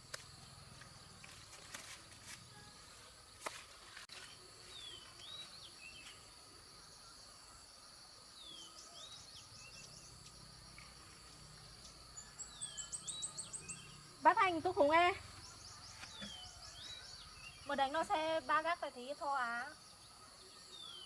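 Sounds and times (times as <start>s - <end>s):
insects trilling: 0.0s - 21.0s
bird chirping: 4.1s - 18.4s, 19.8s - 21.0s.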